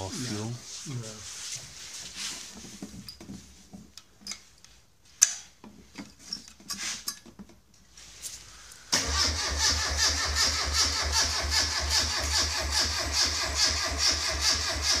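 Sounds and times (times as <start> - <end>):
engine running without silencer: 9.0 - 15.0.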